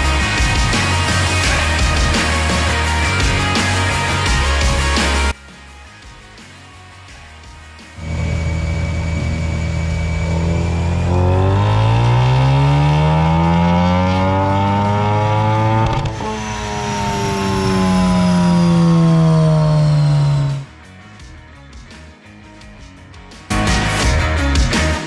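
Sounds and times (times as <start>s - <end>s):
car engine revving: 8.0s - 20.9s.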